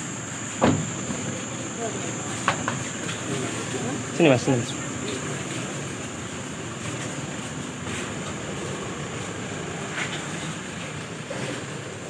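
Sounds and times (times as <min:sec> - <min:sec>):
car engine running: 0:00.0 - 0:12.0
faint knocks: 0:02.4 - 0:03.2.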